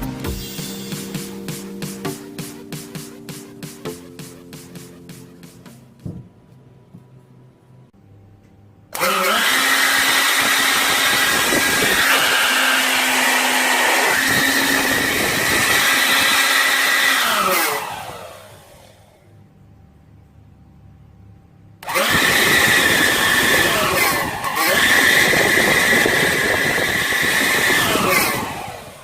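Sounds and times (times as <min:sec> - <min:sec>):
vacuum cleaner motor whine: 0:09.0 - 0:19.4, 0:21.8 - 0:29.0.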